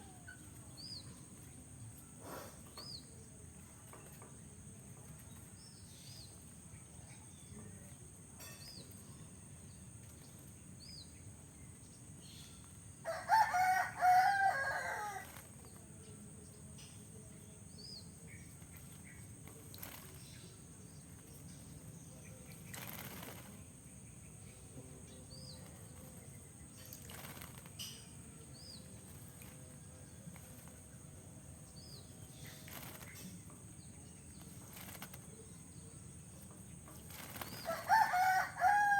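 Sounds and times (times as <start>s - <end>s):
rooster crowing: 13.0s - 15.3s, 37.6s - 38.9s
bird fluttering wings: 13.1s - 15.9s, 18.5s - 21.8s, 22.4s - 23.8s, 25.3s - 31.2s, 31.8s - 33.5s, 34.2s - 35.6s, 36.7s - 38.9s.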